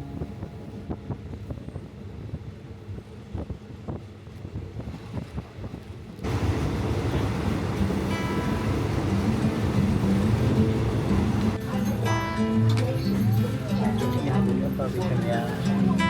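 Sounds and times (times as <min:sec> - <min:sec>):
loud rushing wind noise: 0:00.0 - 0:11.6
moving passenger train rumble: 0:00.0 - 0:16.0.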